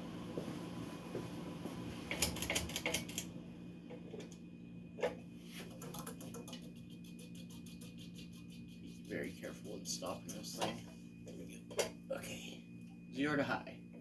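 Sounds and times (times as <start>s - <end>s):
ceiling fan motor humming: 0.0s - 14.0s
quick evenly spaced ticks: 5.7s - 10.4s.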